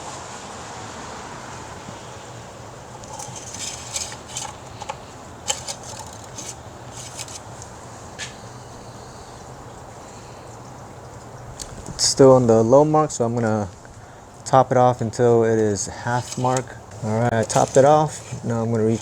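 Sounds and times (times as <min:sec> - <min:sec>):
steady low hum: 0:01.2 - 0:19.0
metallic clicks and scrapes: 0:02.8 - 0:07.7, 0:16.1 - 0:19.0.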